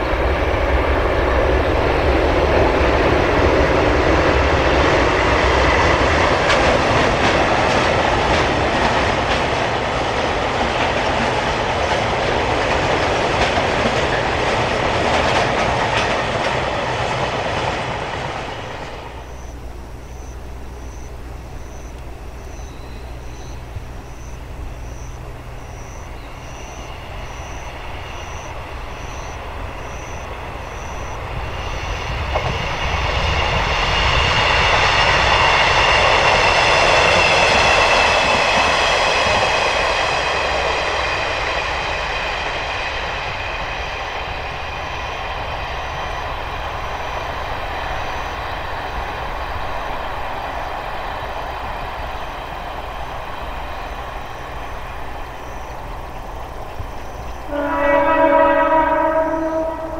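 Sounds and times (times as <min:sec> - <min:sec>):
diesel railcar engine: 0:00.0 - 0:59.9
train wheels clattering over rail joints: 0:00.7 - 0:20.3
faint high chirp: 0:19.2 - 0:29.4.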